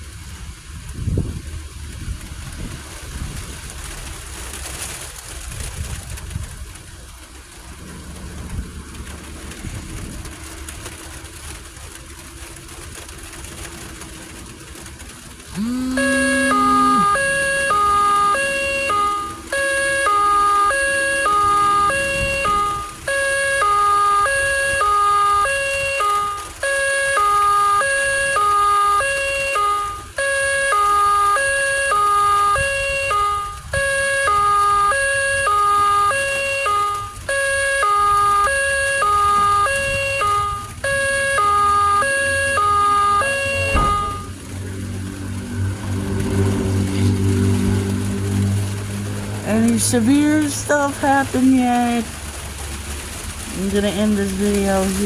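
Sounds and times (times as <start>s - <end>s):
rain: 0.0s - 55.0s
wind: 0.0s - 55.0s
electronic two-tone alarm: 15.5s - 44.4s.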